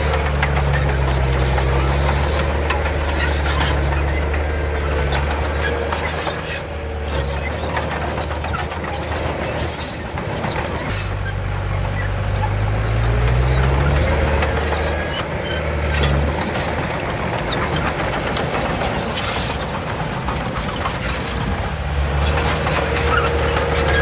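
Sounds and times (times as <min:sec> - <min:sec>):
bulldozer diesel engine under load: 0:00.0 - 0:24.0
high squeaks: 0:00.0 - 0:24.0.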